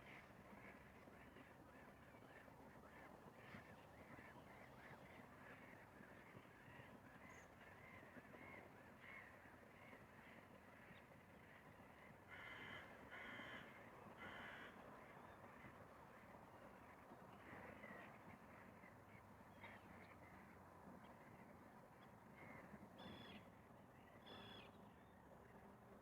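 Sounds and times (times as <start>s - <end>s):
distant crow cawing: 12.3s - 14.8s.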